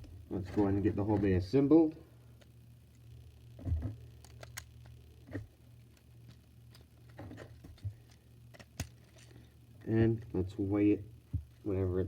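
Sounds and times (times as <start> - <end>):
low steady hum: 0.0 - 12.0
plastic pieces clicking together: 4.2 - 5.0.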